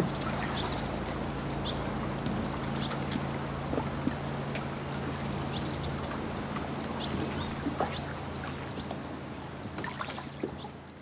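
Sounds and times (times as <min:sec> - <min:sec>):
water lapping against a dock: 0:00.0 - 0:11.0.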